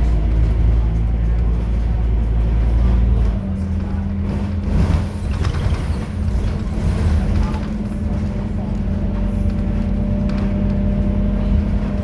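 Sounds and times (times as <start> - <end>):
bus engine running: 0.0 - 12.0.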